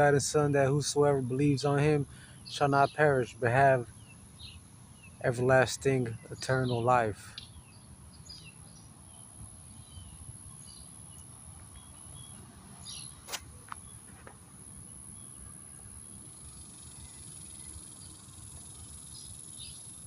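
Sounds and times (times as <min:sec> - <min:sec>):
bird chirps: 0:00.0 - 0:20.0
insect trill: 0:00.0 - 0:20.0
sharp click: 0:13.2 - 0:14.4.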